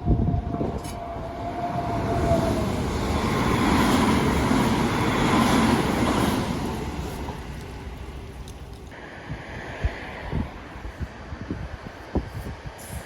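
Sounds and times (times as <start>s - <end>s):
electric train passing: 0.0s - 12.7s.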